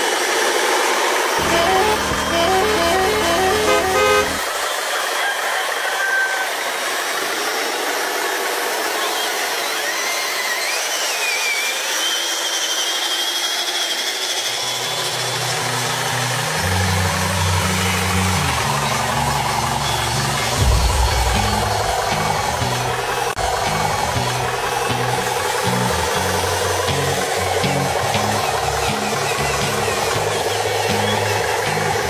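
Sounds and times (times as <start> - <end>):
rc truck whirring hiss: 0.0 - 1.8, 2.5 - 20.6
low hum stepping pitches: 1.4 - 4.5, 20.0 - 28.5.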